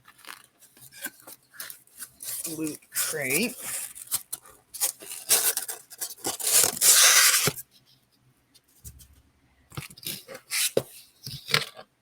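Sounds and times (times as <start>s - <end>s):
packaging rustling and tearing: 0.0s - 7.6s.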